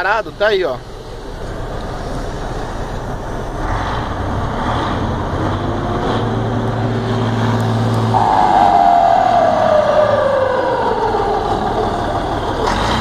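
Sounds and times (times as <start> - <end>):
diesel truck engine revving: 0.0 - 13.0
turbocharger whistling: 6.2 - 13.0.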